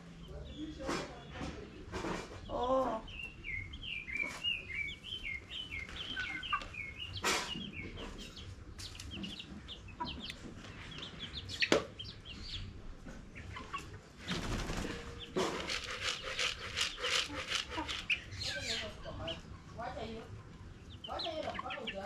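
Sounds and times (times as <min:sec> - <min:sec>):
chicks peeping: 0:00.0 - 0:22.0
wings flapping: 0:14.2 - 0:18.5.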